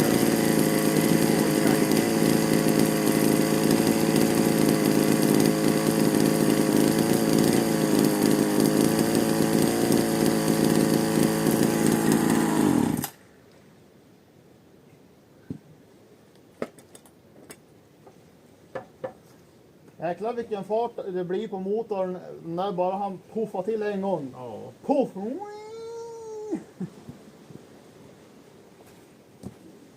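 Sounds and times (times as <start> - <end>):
engine running fast: 0.0 - 12.6.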